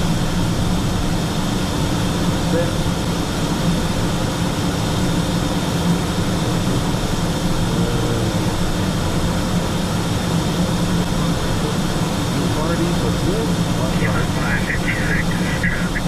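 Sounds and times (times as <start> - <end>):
jet cockpit drone: 2.1 - 16.0
faint high whine: 11.1 - 16.0.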